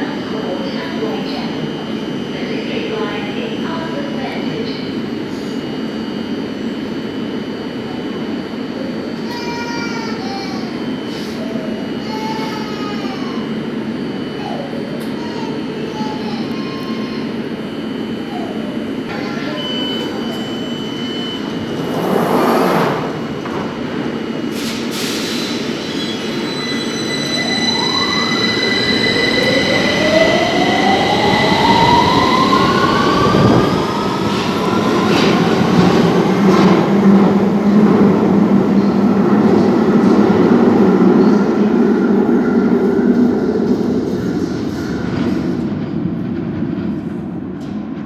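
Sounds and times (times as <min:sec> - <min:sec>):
train wheels rumbling on rails: 0:21.4 - 0:48.0.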